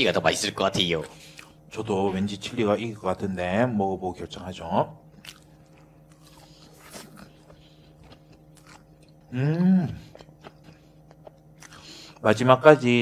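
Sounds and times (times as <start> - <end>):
man chewing: 1.0 - 1.6, 5.1 - 12.2
man humming: 9.3 - 10.2.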